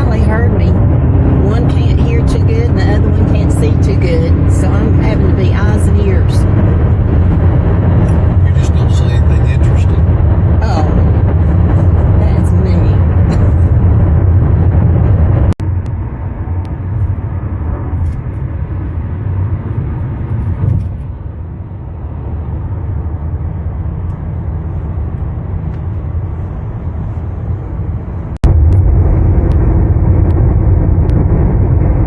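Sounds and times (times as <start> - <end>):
car road and engine rumble: 0.0 - 32.0.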